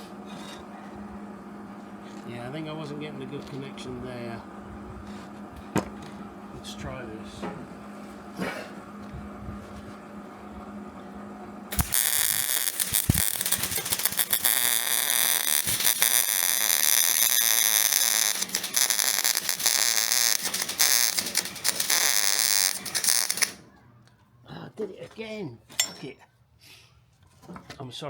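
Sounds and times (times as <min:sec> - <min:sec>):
welder hum: 0:11.7 - 0:23.6
welding arc crackling: 0:11.7 - 0:23.6.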